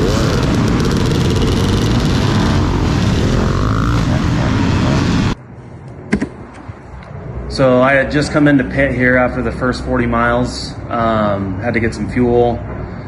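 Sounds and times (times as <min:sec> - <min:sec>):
dirt bike engine running: 0:00.0 - 0:05.4
loud rushing noise: 0:00.0 - 0:05.6.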